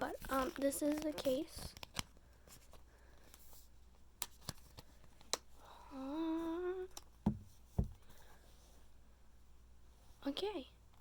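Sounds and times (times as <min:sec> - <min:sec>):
person humming: 0:05.8 - 0:07.0.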